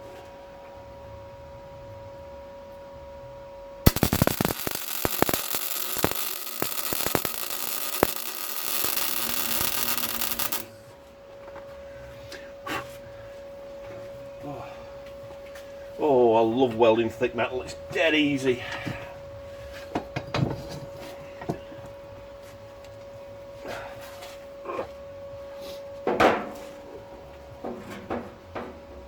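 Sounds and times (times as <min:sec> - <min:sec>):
steady electrical hum: 0:00.0 - 0:29.0
arc welding crackling and popping: 0:03.9 - 0:10.8.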